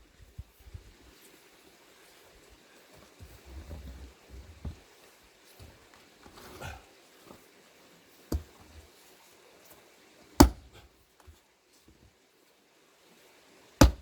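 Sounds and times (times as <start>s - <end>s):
faint knock: 3.2s - 4.8s
axe chopping into log: 8.3s - 8.6s, 10.4s - 10.8s.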